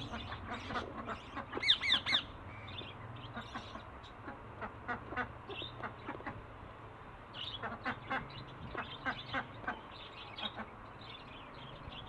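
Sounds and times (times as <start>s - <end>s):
ducks quacking: 0.0s - 2.4s, 3.2s - 6.4s, 7.4s - 10.8s.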